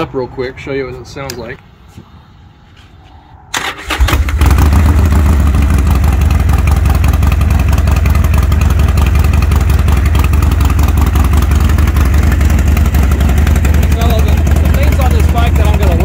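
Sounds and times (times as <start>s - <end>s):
motorcycle engine idling: 3.9s - 16.0s.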